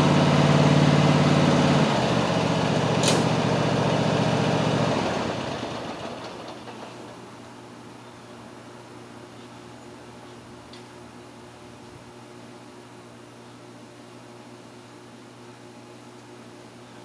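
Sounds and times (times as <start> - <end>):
lawn mower engine running: 0.0 - 6.9
sharp click: 3.0 - 3.3.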